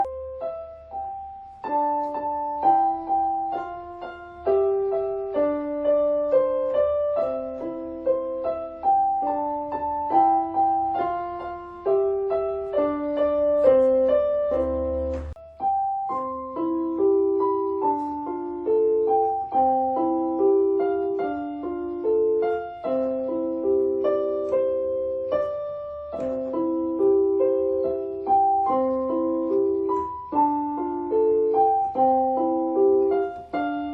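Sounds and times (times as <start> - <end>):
solo piano music: 0.0 - 33.9.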